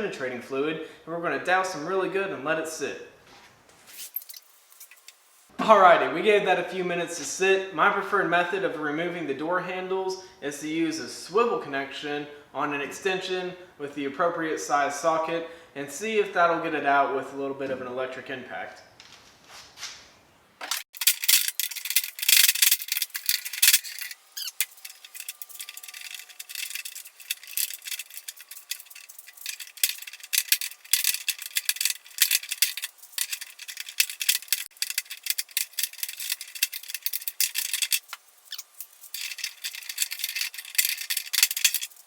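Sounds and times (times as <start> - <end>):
metal tools rattling and clinking: 20.6 - 42.0.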